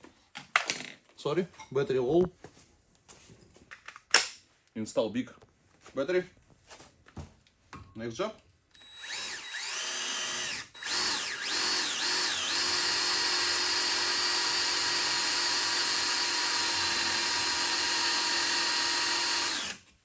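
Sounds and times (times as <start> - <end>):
cordless drill motor: 8.7 - 19.9.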